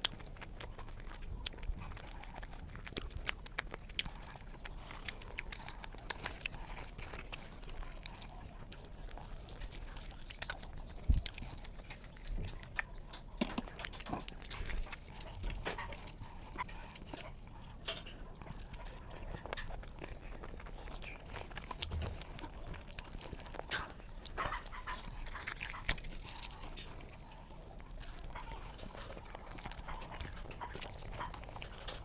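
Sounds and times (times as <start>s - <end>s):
wet mouth clicks: 0.0s - 17.0s
person chewing and biting: 0.0s - 32.0s.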